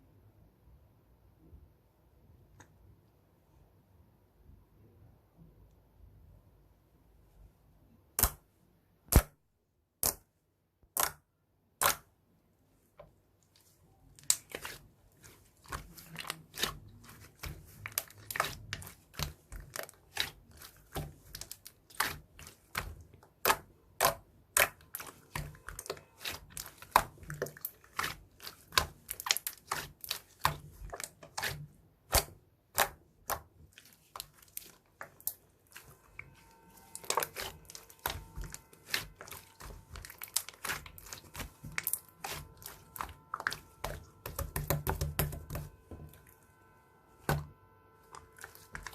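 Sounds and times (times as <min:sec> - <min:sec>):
slime clicking and popping: 0:08.2 - 0:08.4, 0:10.0 - 0:10.2, 0:10.8 - 0:12.1, 0:17.7 - 0:33.5.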